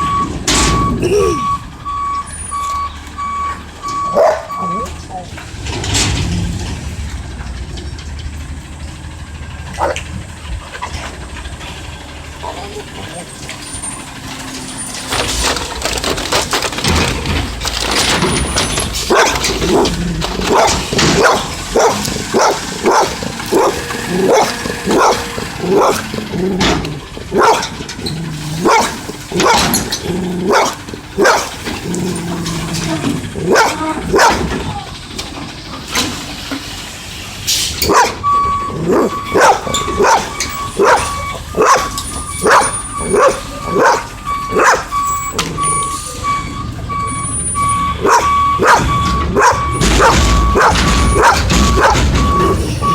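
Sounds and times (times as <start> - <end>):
truck reversing beeper: 0.0 - 52.9
dog barking: 4.1 - 4.8, 9.8 - 10.0, 19.1 - 19.9, 20.5 - 26.0, 27.3 - 27.8, 28.6 - 29.8, 30.4 - 31.6, 33.4 - 34.6, 37.8 - 38.2, 38.8 - 44.9, 48.0 - 52.2.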